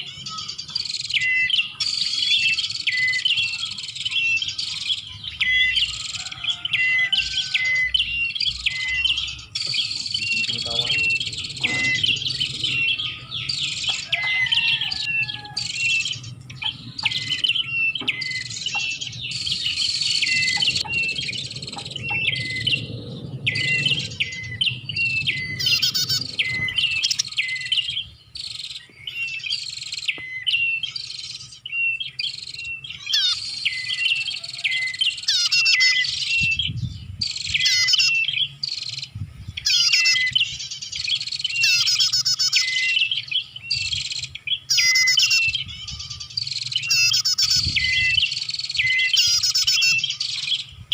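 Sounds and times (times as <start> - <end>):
prinia fast high chirping: 0.0 - 50.9
faint low rumble: 19.1 - 27.1.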